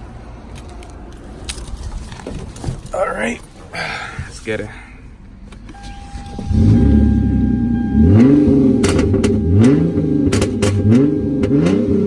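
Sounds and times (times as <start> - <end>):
exhaust cracks: 0.0 - 12.0
car engine accelerating hard: 5.7 - 12.0.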